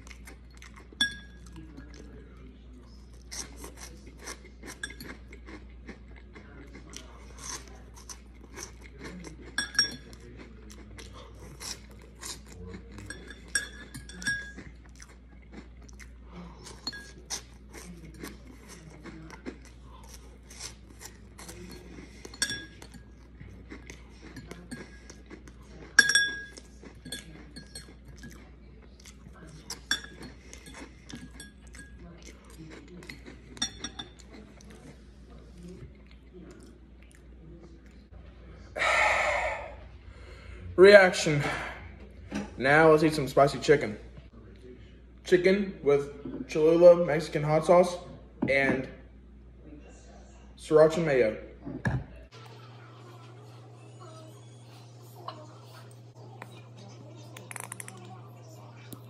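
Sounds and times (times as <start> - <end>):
crunchy fries being chewed: 0.0 - 38.1, 52.4 - 59.0
metal fork clinking against bowl: 0.9 - 2.0, 3.3 - 5.3, 9.4 - 10.2, 11.6 - 15.0, 16.7 - 18.3, 21.4 - 34.4.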